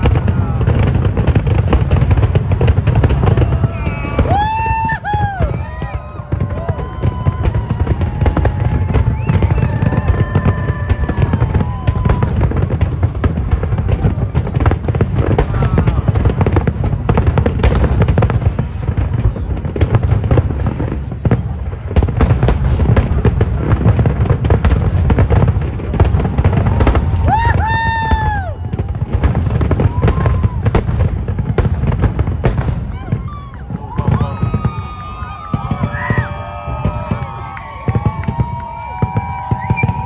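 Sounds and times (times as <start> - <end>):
fireworks whistling: 0.0 - 13.0, 24.5 - 40.0
fireworks rumble: 0.0 - 40.0
fireworks sharp cracks: 0.0 - 40.0.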